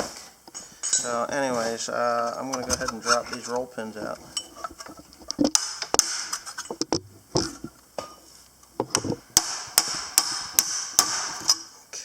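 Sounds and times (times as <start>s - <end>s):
hammer striking metal: 9.4s - 11.7s.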